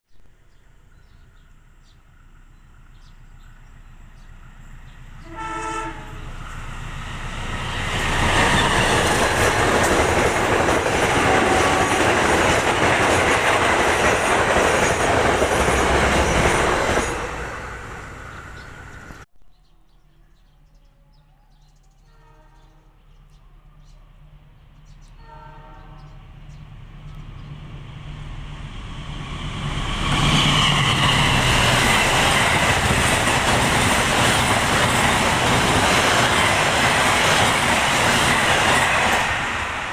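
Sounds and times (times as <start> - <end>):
train wheels rushing on rails: 1.3 - 19.3, 26.4 - 39.9
train horn: 5.2 - 6.4, 11.2 - 12.0, 22.0 - 23.0, 25.2 - 26.2.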